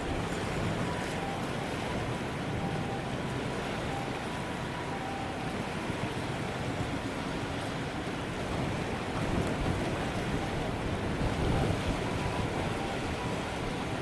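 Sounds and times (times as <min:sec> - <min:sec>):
wind buffeting microphone: 0:08.5 - 0:14.0.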